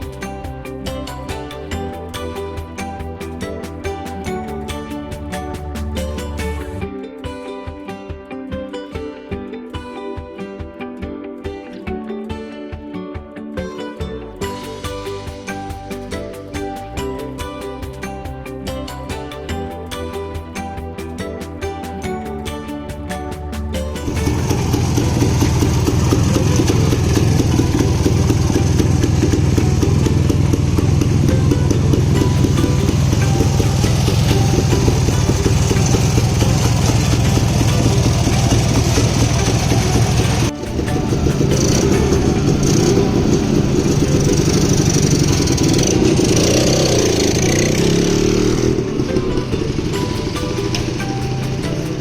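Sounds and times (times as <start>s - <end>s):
two-stroke engine idling: 23.9s - 52.0s.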